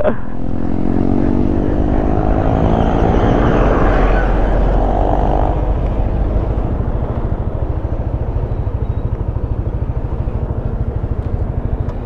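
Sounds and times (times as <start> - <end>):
motorcycle engine idling: 3.7 - 12.0.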